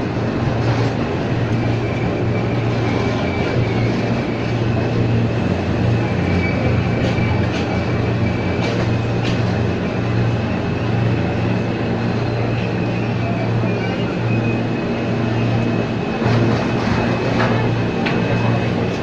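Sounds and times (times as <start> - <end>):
electric train running on track: 0.0 - 19.0.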